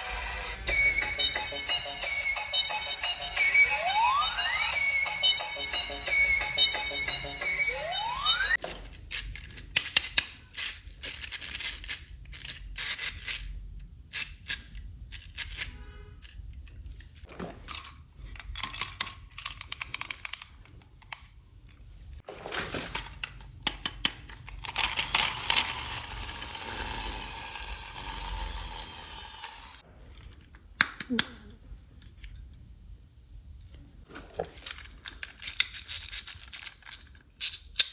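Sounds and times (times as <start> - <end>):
plastic toy parts clicking: 8.6 - 21.9, 22.9 - 28.8, 30.2 - 31.4, 34.5 - 37.9.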